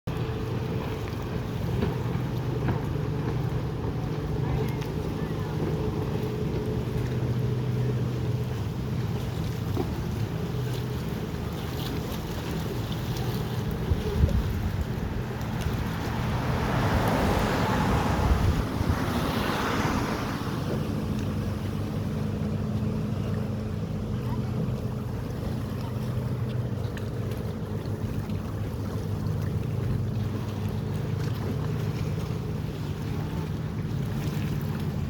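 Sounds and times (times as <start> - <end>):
boat motor running: 0.1 - 35.0
rushing water: 0.1 - 35.0
wind on microphone: 12.4 - 22.6.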